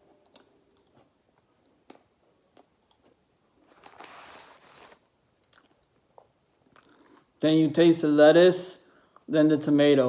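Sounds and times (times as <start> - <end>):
chewing crispy food: 5.4 - 7.3.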